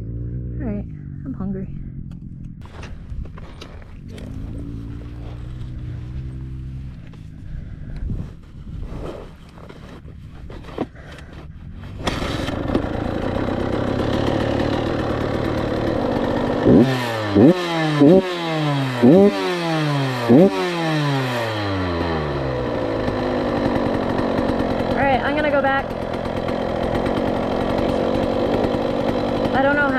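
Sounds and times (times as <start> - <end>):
dirt bike engine idling: 0.0 - 8.8, 9.5 - 29.9
engine throttle blips: 11.2 - 29.9.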